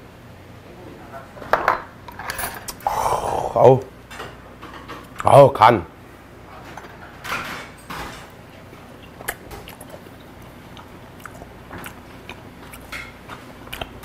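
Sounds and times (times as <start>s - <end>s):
wet chewing sounds: 8.6s - 14.0s
mouth clicks and smacks: 13.7s - 14.0s.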